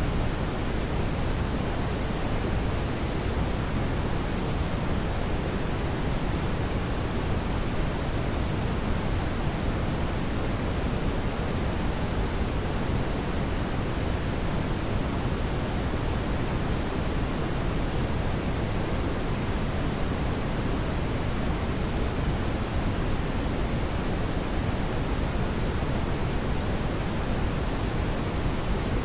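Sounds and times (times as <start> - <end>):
brown noise rumbling hiss: 0.0 - 29.0.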